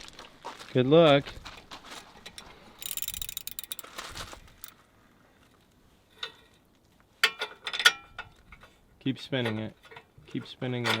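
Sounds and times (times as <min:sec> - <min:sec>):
sharp metallic clinks: 0:02.8 - 0:04.0
ratchet wrench clicking: 0:02.8 - 0:04.7.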